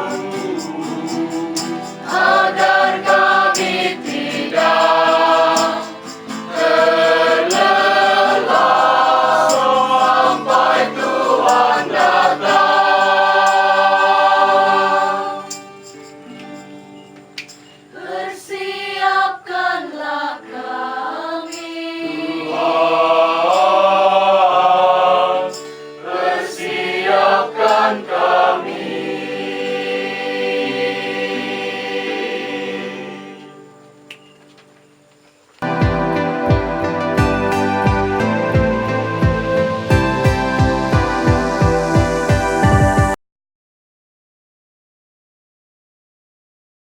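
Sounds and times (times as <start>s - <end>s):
choir singing in harmony: 0.0s - 16.1s, 17.9s - 34.1s, 35.6s - 43.2s.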